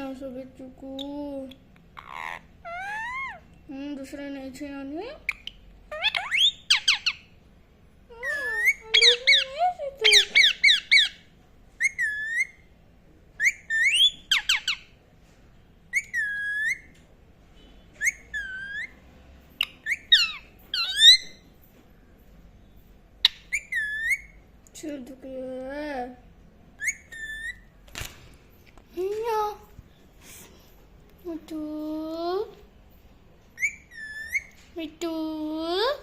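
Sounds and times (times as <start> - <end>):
parakeet chirping and whistling: 2.0 - 3.4, 5.3 - 7.3, 8.2 - 11.2, 11.8 - 12.7, 13.4 - 15.0, 15.9 - 17.0, 17.9 - 19.0, 19.6 - 21.4, 23.2 - 24.4, 26.8 - 27.8, 33.6 - 34.6.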